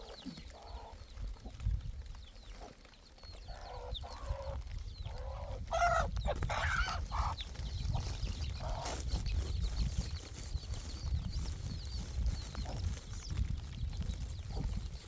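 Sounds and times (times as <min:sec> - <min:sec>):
chickens clucking: 0:00.0 - 0:01.8, 0:02.4 - 0:11.8.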